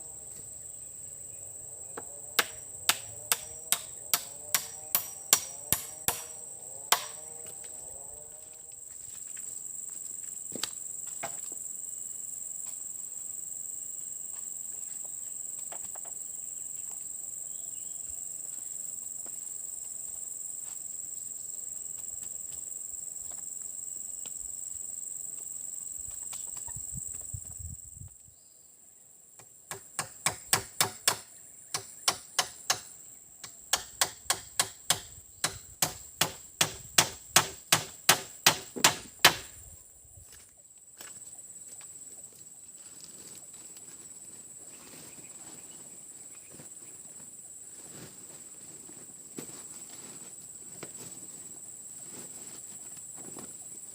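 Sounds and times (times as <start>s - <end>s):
high-pitched insect drone: 0.0s - 10.5s
tool chopping wood: 2.4s - 7.3s, 29.7s - 39.6s.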